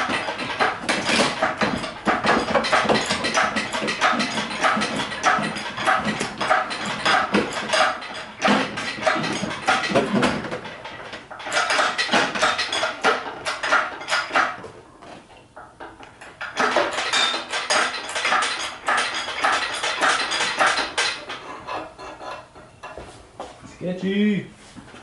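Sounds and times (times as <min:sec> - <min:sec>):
metal tools clinking: 0:00.0 - 0:14.5.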